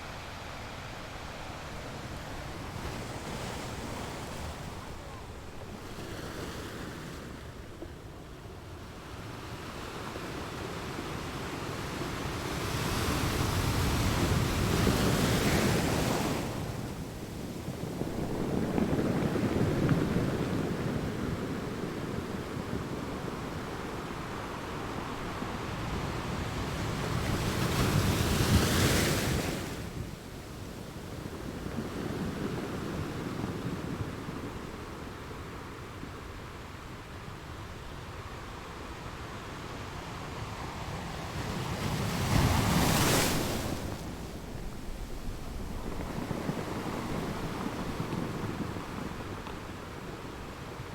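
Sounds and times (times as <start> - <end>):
ocean surf washing: 0.0 - 50.9
waves breaking: 41.2 - 50.9.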